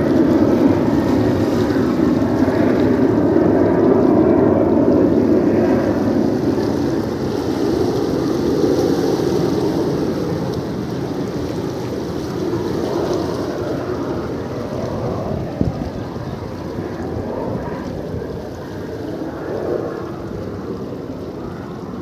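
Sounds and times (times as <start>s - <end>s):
sea waves washing over rocks: 0.0s - 22.0s
wind buffeting microphone: 0.0s - 22.0s.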